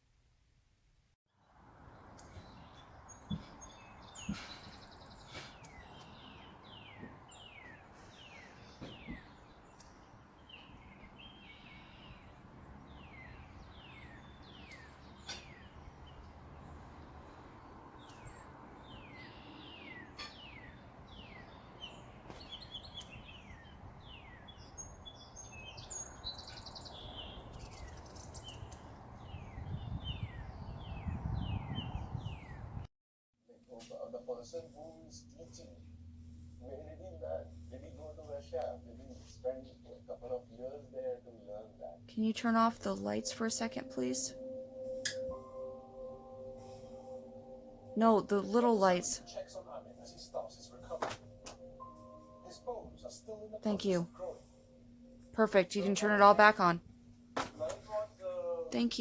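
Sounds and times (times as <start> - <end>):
outdoor background hiss: 0.0 - 29.8, 33.5 - 59.0
songbirds calling: 1.4 - 32.8.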